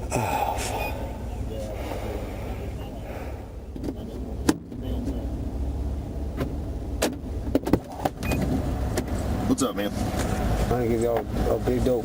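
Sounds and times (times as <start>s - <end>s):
car engine idling: 0.0s - 12.0s
sharp clicks and knocks: 6.4s - 9.2s.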